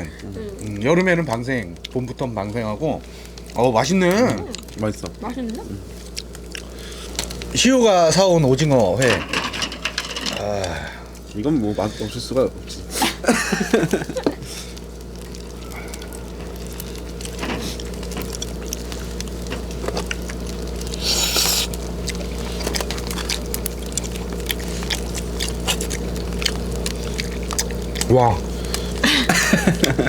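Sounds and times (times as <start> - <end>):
chewing: 0.0 - 7.7, 8.4 - 30.0
electrical hum: 0.0 - 30.0
chopsticks and dishes clicking: 9.0 - 10.5.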